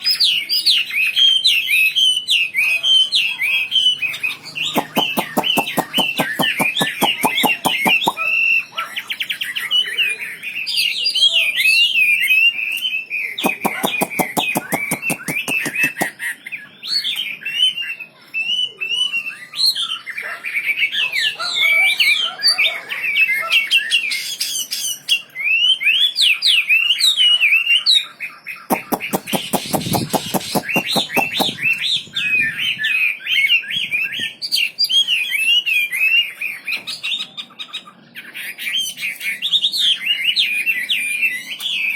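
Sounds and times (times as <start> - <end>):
songbird chirping and twittering: 0.0 - 41.9
rapid rattling clicks: 13.5 - 16.1, 28.7 - 31.5.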